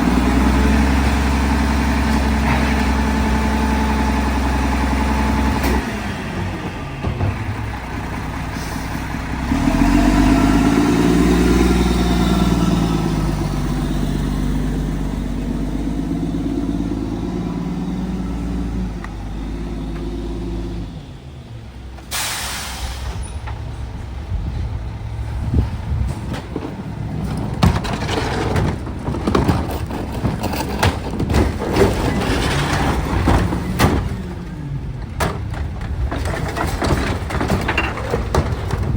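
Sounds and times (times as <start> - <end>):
garbage truck engine revving: 0.0 - 38.9
short air hiss: 22.1 - 23.2
irregular knocks and rattles: 26.1 - 34.2, 35.2 - 38.9.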